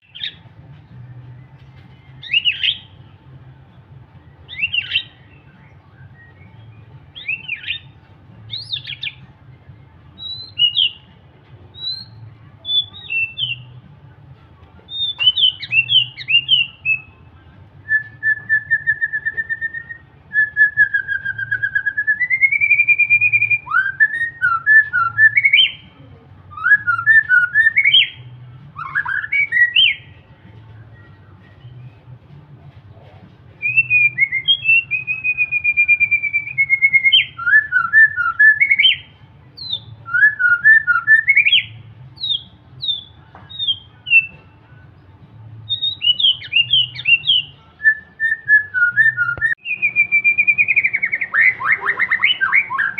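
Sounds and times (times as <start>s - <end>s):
bird singing whistled phrases: 2.2s - 2.9s, 4.5s - 7.9s, 10.2s - 11.1s, 11.8s - 13.7s, 14.9s - 17.2s, 17.9s - 25.8s, 26.5s - 30.2s, 33.6s - 44.4s, 45.7s - 52.9s.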